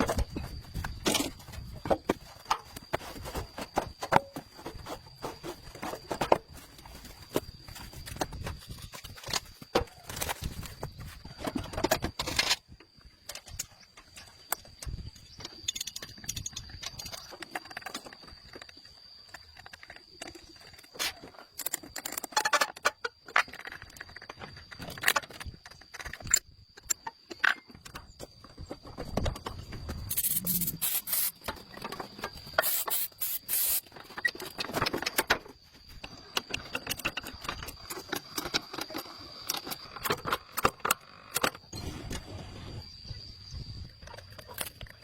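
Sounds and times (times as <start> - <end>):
hissing spray bursts: 32.6 - 33.8.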